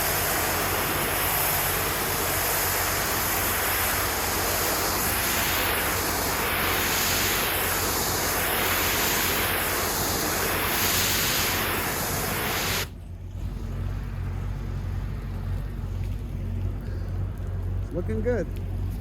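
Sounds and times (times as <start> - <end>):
pressure washer spray hissing: 0.0 - 12.9
low hum: 0.0 - 19.0.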